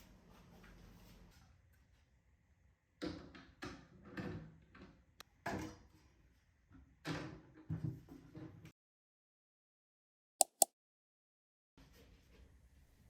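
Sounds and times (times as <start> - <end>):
sharp click: 10.4 - 10.7.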